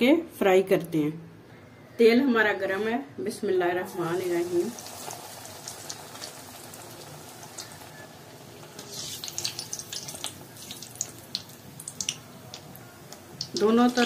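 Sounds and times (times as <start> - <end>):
food frying in hot oil: 4.1 - 14.0
oil crackling and popping: 4.4 - 14.0.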